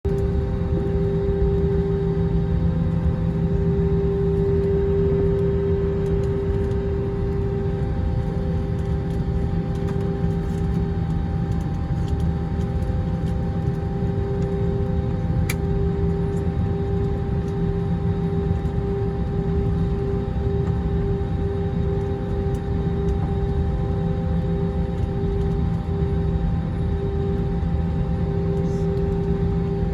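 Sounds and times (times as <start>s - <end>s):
jet engines running at low power: 0.1s - 29.9s.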